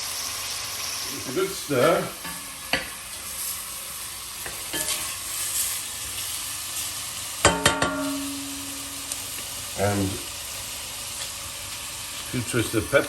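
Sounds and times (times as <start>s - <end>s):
food sizzling in oil: 0.0s - 13.0s
metal clank: 7.4s - 8.6s.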